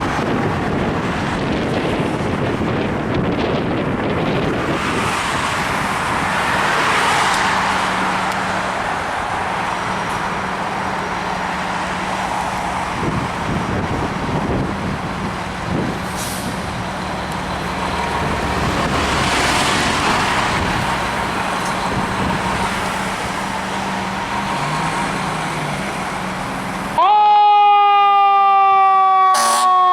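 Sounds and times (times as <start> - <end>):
road traffic: 0.0 - 29.9
diesel engine humming: 5.5 - 27.1.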